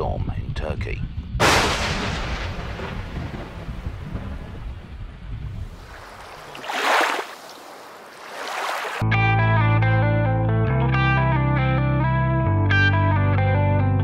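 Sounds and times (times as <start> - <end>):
thunder crack and rumble: 1.4 - 6.1.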